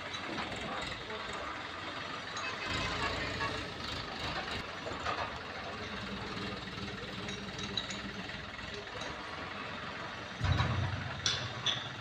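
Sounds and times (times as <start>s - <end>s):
heavy machinery engine rumble: 0.0s - 12.0s
knocks and clanks: 10.4s - 12.0s.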